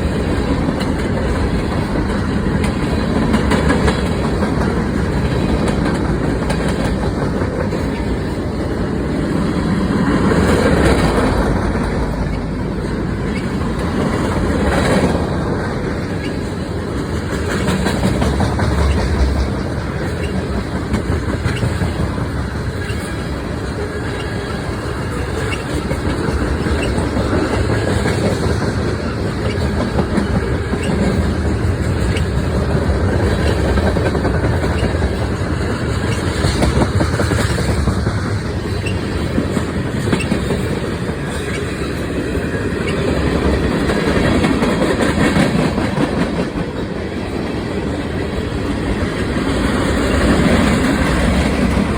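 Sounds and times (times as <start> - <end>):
wheels clicking over rail joints: 0.0 - 51.9.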